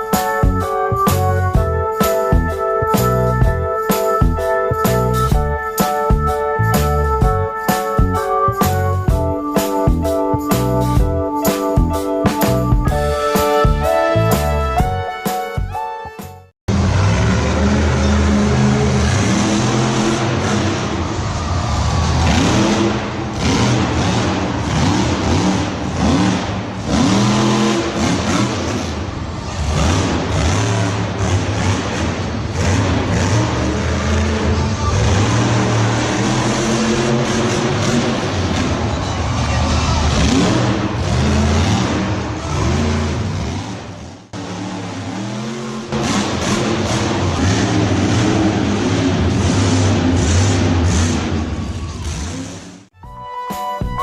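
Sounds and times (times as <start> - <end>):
engine revving: 16.7 - 52.9.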